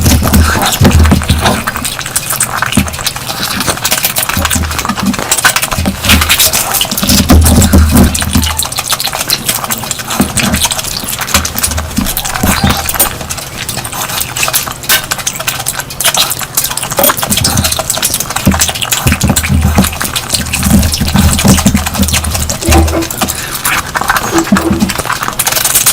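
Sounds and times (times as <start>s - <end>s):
wet chewing and smacking: 0.0s - 25.9s.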